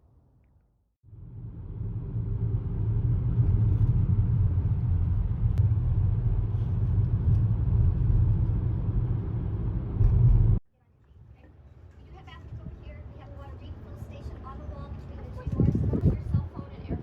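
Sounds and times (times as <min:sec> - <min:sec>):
moving vehicle rumbling: 0:01.1 - 0:10.6.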